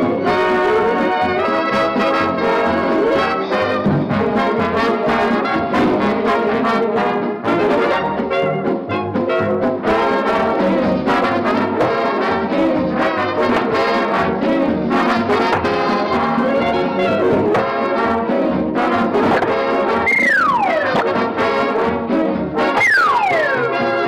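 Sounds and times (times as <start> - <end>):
orchestral brass cartoon music: 0.0 - 24.0
high sliding tone dropping in pitch: 20.0 - 21.0, 22.8 - 23.6.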